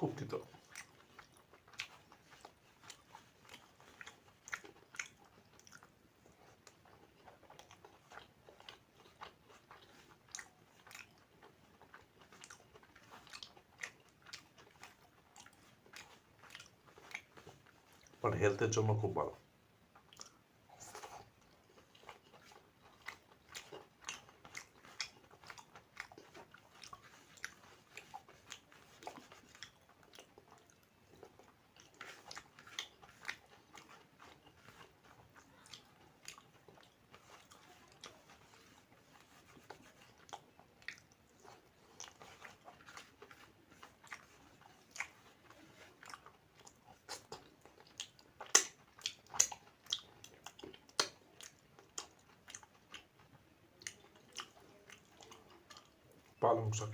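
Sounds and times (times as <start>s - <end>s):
person chewing and crunching food: 0.0s - 56.9s
wet mouth clicks: 20.0s - 35.0s, 46.1s - 53.2s.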